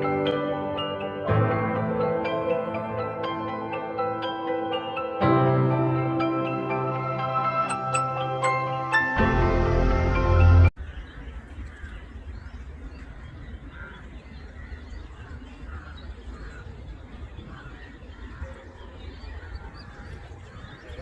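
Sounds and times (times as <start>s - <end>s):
background music: 0.0s - 10.8s
birds calling: 10.8s - 21.0s.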